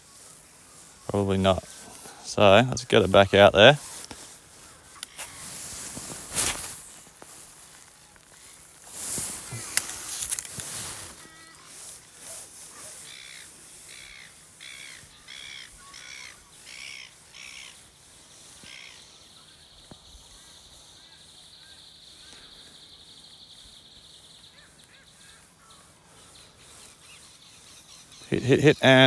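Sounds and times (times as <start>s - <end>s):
bird cawing: 11.1s - 19.1s, 24.4s - 26.4s.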